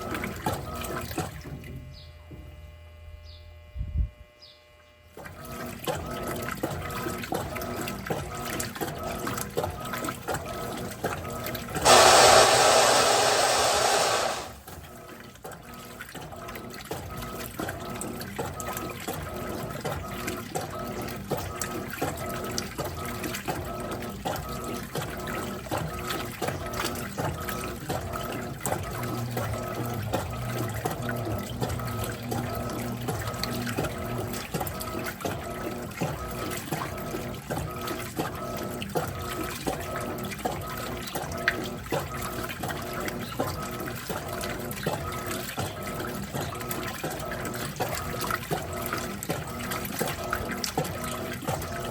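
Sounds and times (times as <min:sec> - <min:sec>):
water rushing into washing machine: 0:00.0 - 0:01.8, 0:05.2 - 0:51.9
washing machine motor hum: 0:00.0 - 0:04.2, 0:05.1 - 0:51.9
agitator sloshing in water: 0:16.0 - 0:51.9.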